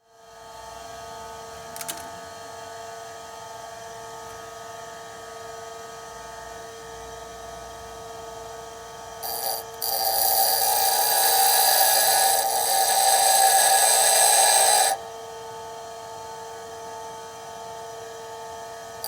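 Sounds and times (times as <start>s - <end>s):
bench grinder humming: 9.2s - 15.0s
drill bit grinding on wheel: 9.2s - 15.0s.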